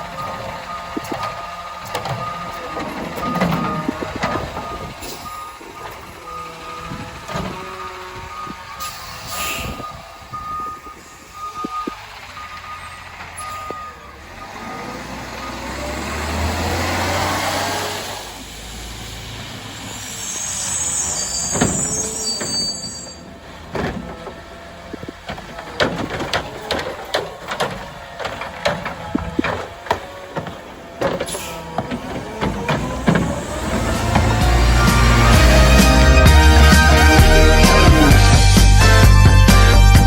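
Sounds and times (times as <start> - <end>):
brakes squealing and hissing: 0.0 - 40.0
truck engine revving: 0.0 - 40.0
truck reversing beeper: 0.0 - 40.0
sharp knocks: 23.7 - 35.8.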